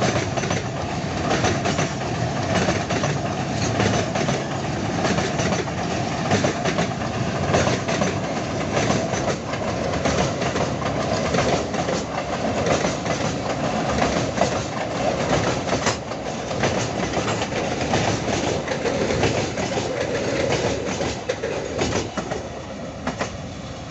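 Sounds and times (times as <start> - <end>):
wheels clacking over rail joints: 0.0 - 23.4
freight train rumble: 0.0 - 23.9.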